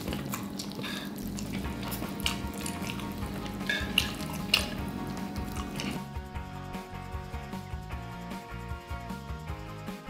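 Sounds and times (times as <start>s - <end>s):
wet chewing of noodles: 0.0s - 6.2s
background music: 0.0s - 10.0s
sharp wet smacks: 1.8s - 3.1s, 3.8s - 4.8s.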